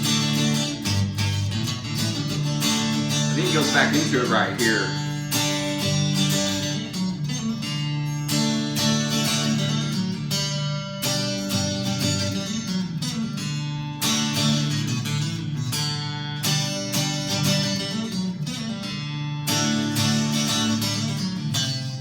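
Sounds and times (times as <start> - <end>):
clean electric guitar strumming chords: 0.0 - 15.6.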